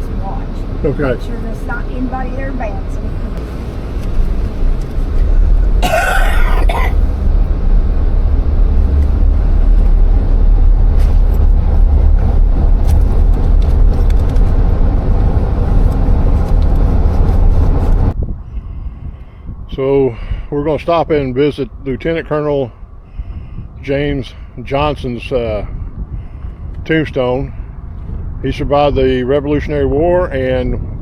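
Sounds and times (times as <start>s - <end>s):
vehicle road rumble: 0.0s - 31.0s
person clearing throat: 5.8s - 7.1s.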